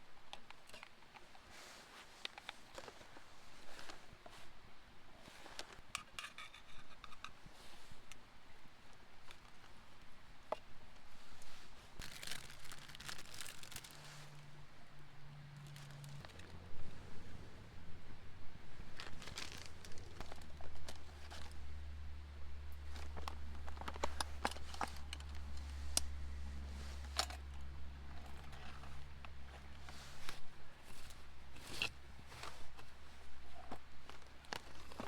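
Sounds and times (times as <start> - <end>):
crinkling and rustling handling: 0.0 - 35.0
low rumble: 15.4 - 29.6.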